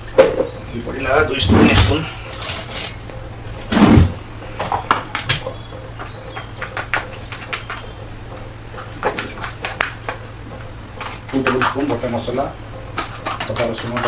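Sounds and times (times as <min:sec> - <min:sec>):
steady low hum: 0:00.0 - 0:14.0
utensils clinking on cookware: 0:01.7 - 0:03.8.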